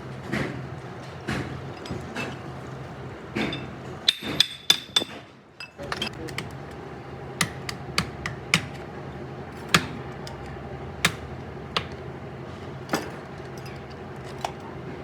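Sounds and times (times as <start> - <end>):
workshop hum: 0.0 - 15.0
hand tools clicking on metal: 6.0 - 6.8, 7.4 - 8.8, 9.6 - 12.0.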